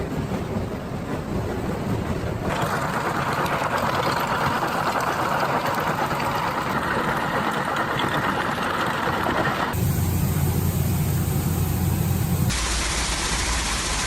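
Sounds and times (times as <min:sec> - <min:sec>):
heavy machinery running: 0:09.5 - 0:14.0.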